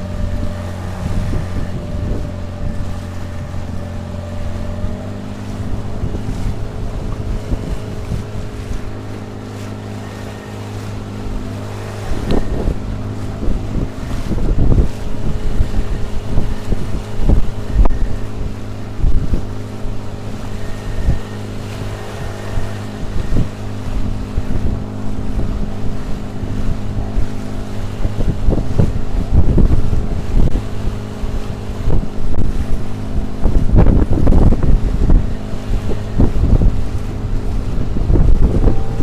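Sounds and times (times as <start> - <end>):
outboard motor running: 0.0 - 39.0
irregular thumps and buffeting: 10.8 - 39.0.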